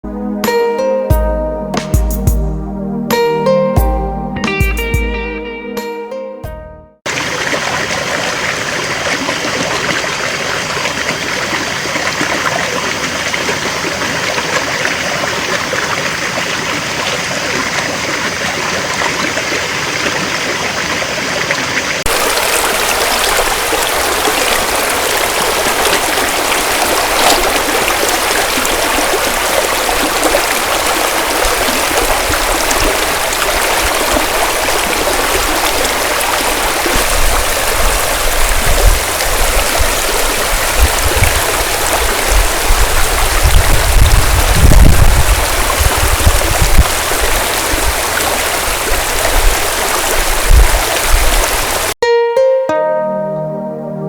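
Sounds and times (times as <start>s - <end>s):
hissy rush of water: 7.1s - 52.0s
stream running over stones: 7.1s - 52.0s.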